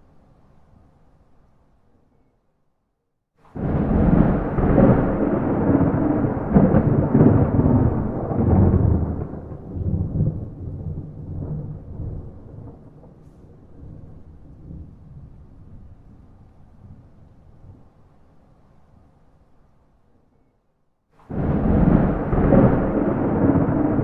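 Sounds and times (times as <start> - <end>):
thunder clap and rolling rumble: 3.6 - 17.9, 21.3 - 24.0.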